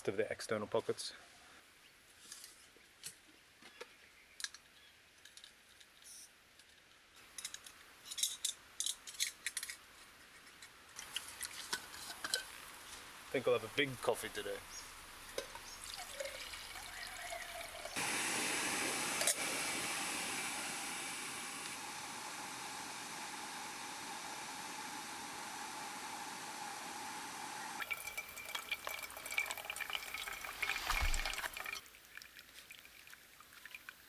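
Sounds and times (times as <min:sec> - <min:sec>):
water pouring: 0:15.2 - 0:25.5, 0:27.8 - 0:34.0.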